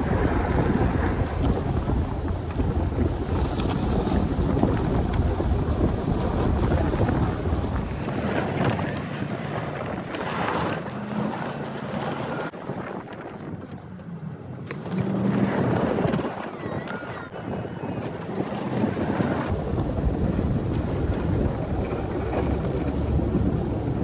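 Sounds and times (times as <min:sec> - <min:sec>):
plow truck pushing snow: 0:00.0 - 0:12.5, 0:18.4 - 0:24.0
wind noise on microphone: 0:00.0 - 0:24.0.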